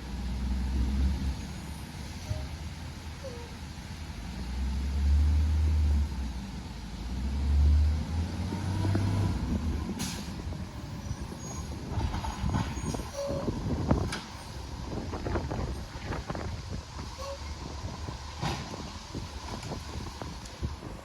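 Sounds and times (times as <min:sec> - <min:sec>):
truck diesel engine revving: 0:04.1 - 0:11.0.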